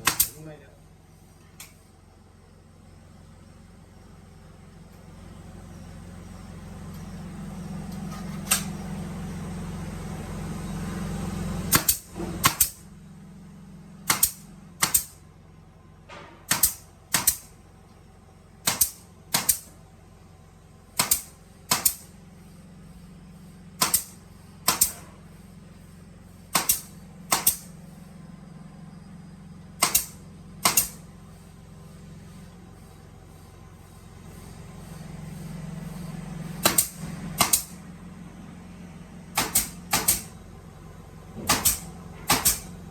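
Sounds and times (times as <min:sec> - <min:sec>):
sharp mechanical clacks: 0:00.0 - 0:00.5, 0:11.7 - 0:12.8, 0:14.0 - 0:15.2, 0:16.5 - 0:17.5, 0:18.6 - 0:19.7, 0:21.0 - 0:22.1, 0:23.8 - 0:25.1, 0:26.5 - 0:27.7, 0:29.8 - 0:31.0, 0:36.6 - 0:37.8, 0:39.4 - 0:40.4, 0:41.4 - 0:42.7.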